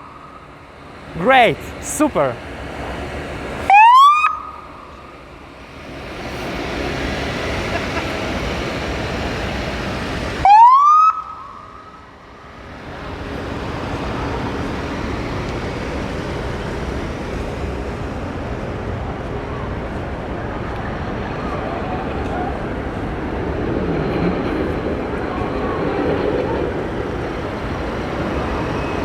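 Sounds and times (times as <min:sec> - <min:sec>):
police siren chirps: 0:03.7 - 0:04.9, 0:10.4 - 0:12.0.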